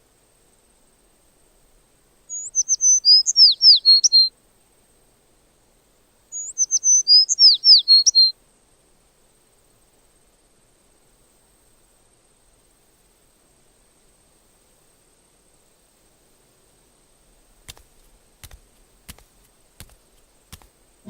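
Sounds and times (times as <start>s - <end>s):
songbird twittering: 2.3s - 4.3s, 6.3s - 8.3s.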